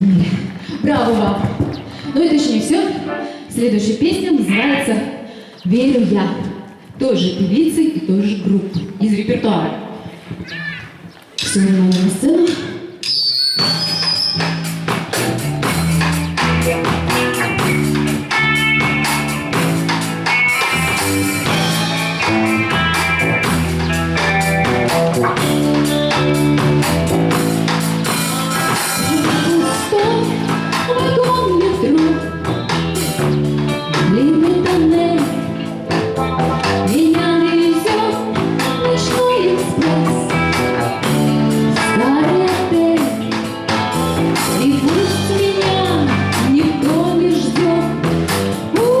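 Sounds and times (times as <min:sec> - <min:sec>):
drum beat: 0:00.9 - 0:02.1, 0:13.6 - 0:49.0
bass guitar: 0:13.6 - 0:49.0
electric guitar: 0:13.6 - 0:49.0
pop-rock song: 0:13.6 - 0:49.0
woman singing: 0:29.0 - 0:32.4, 0:34.0 - 0:35.6, 0:36.9 - 0:40.4, 0:41.8 - 0:43.3, 0:44.5 - 0:49.0.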